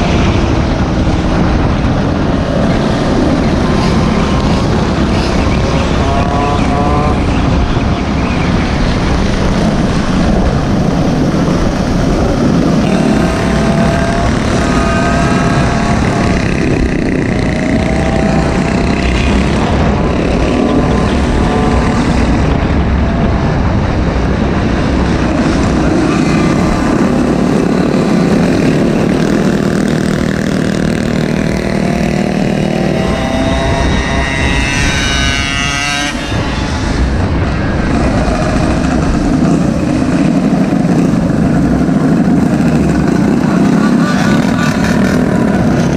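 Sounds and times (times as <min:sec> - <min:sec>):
wind noise on microphone: 0:00.0 - 0:45.9
small engine revving: 0:12.8 - 0:22.5.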